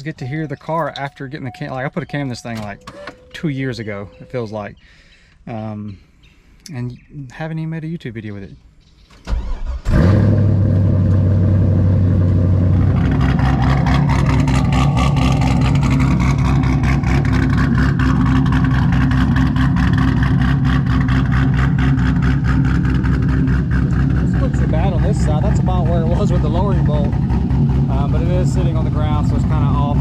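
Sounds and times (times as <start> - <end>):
car engine starting and idling: 9.1 - 30.0.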